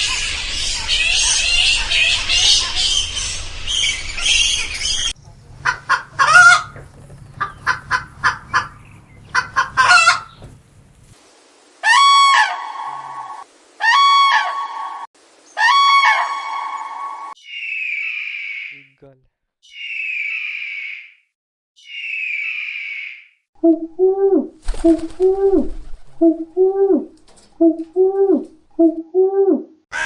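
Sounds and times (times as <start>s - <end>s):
long even-pitched bird calls: 0.0s - 5.2s, 11.8s - 18.9s, 19.6s - 23.4s
birds chirping: 0.0s - 10.6s, 12.0s - 21.1s.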